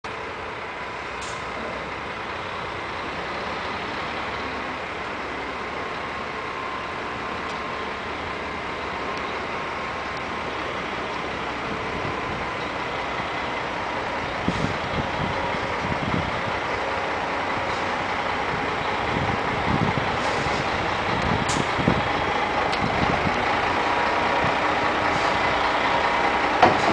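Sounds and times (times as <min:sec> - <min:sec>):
road noise: 0:00.0 - 0:26.9
truck engine running: 0:00.0 - 0:26.9.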